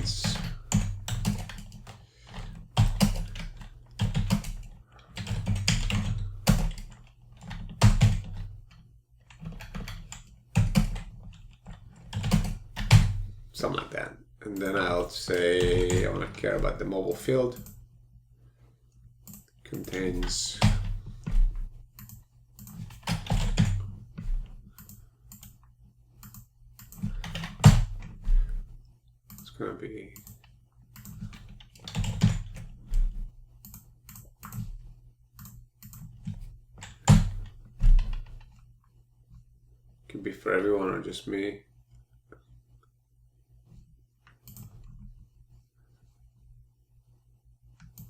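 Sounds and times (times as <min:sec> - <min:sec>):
typing on computer keyboard: 0:00.0 - 0:13.2, 0:21.9 - 0:23.9, 0:30.2 - 0:34.7, 0:35.4 - 0:38.4
low steady hum: 0:00.0 - 0:48.0.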